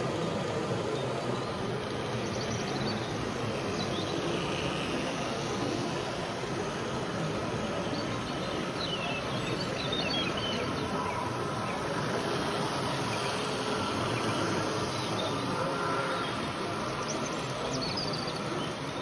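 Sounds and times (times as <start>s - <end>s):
model train motor whirring: 10.8s - 18.6s.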